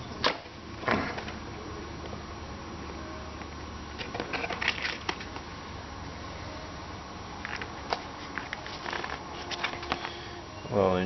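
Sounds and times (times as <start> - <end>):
small parts and packaging rattling: 4.0 - 5.4, 7.4 - 10.2.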